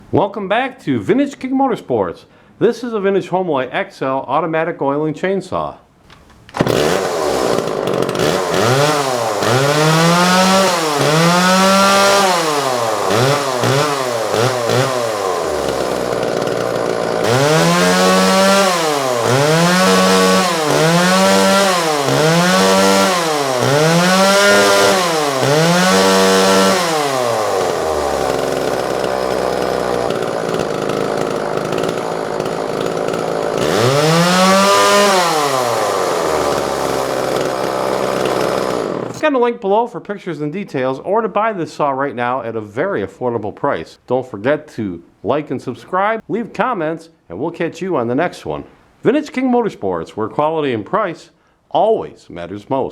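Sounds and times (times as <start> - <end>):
chainsaw engine revving: 6.5 - 39.2.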